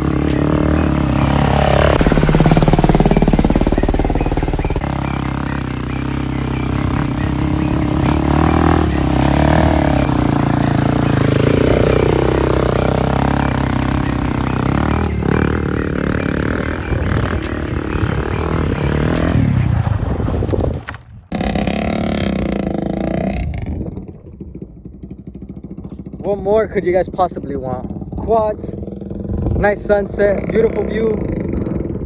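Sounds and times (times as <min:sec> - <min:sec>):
quad engine revving: 0:00.0 - 0:32.0.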